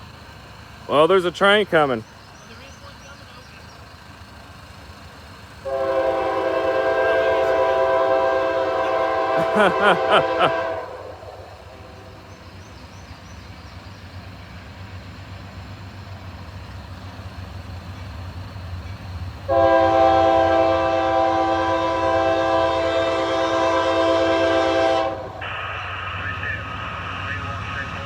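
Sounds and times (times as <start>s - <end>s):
diesel locomotives rumbling: 0.0s - 28.0s
locomotive air horn blast: 5.6s - 12.6s, 19.4s - 28.0s.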